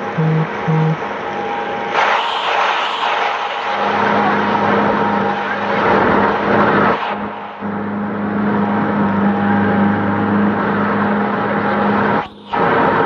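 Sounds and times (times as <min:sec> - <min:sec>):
vehicle engine running: 0:00.0 - 0:01.0.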